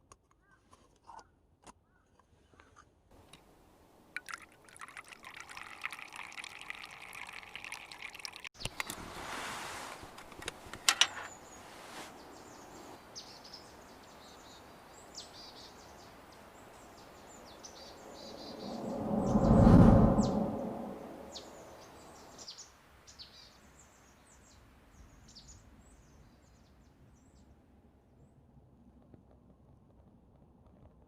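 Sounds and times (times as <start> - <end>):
faint outdoor ambience: 1.9 - 30.4
liquid being poured: 3.2 - 8.6
high bird chirps: 16.8 - 19.5.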